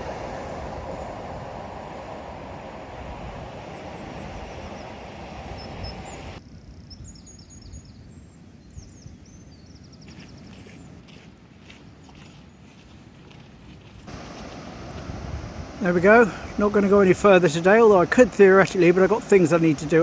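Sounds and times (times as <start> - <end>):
train rumble: 0.0 - 6.4, 14.1 - 20.0
small birds chirping: 3.6 - 13.4.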